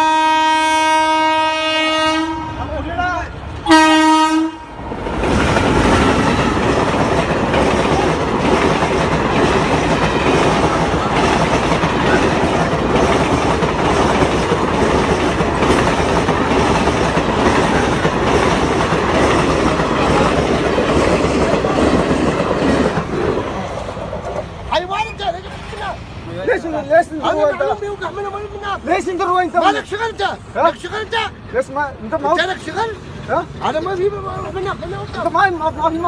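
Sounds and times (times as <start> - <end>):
train passing on rails: 0.0 - 36.0.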